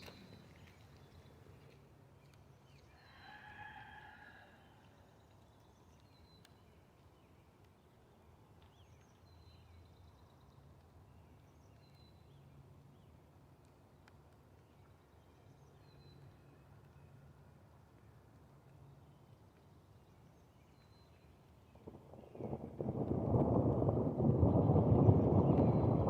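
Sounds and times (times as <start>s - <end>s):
faint rooster crowing: 2.9s - 5.2s.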